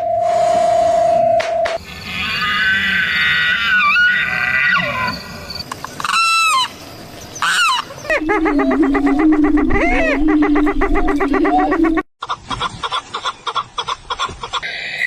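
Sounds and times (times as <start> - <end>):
animal calls: 7.4 - 12.0.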